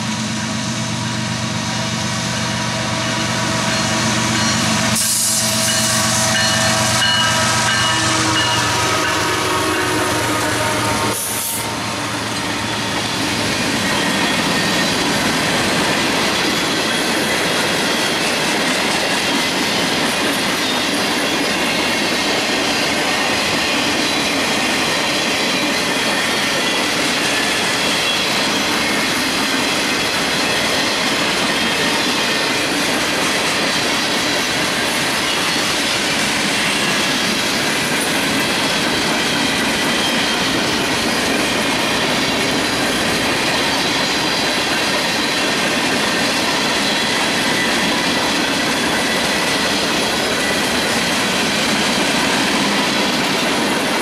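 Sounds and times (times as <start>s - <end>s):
steel wheels clattering on rails: 1.8s - 54.0s
locomotive engine: 6.0s - 17.6s.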